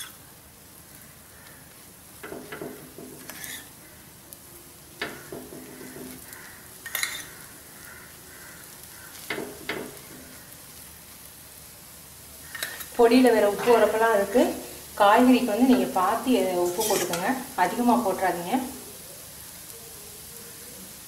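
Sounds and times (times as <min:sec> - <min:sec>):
batter sizzling on a hot pan: 0:00.0 - 0:21.0
knocks and scrapes against pan: 0:02.2 - 0:03.7, 0:05.0 - 0:06.3, 0:09.3 - 0:10.3.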